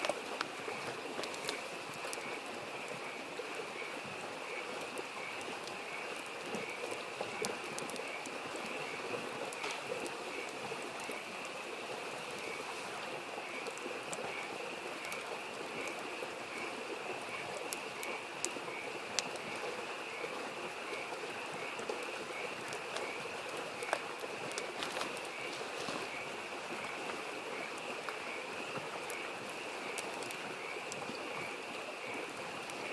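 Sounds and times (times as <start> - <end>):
frogs chorus: 0.0 - 32.9
stream babbling: 0.0 - 32.9
wood fire crackling and popping: 0.0 - 32.9.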